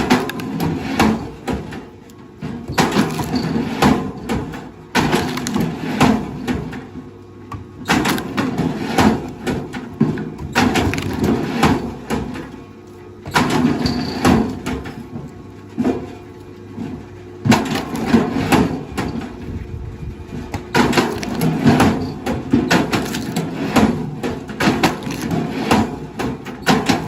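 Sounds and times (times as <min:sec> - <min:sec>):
wood cracking and crunching: 0:00.0 - 0:01.4, 0:02.7 - 0:04.3, 0:05.0 - 0:06.4, 0:07.9 - 0:12.6, 0:20.5 - 0:26.2.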